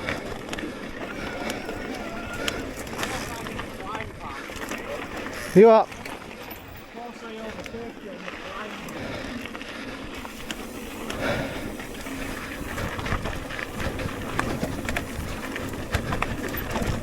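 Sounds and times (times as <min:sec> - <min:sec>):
bike chain and frame rattling: 0:00.0 - 0:17.0
tyres rumbling on dirt: 0:00.0 - 0:17.0.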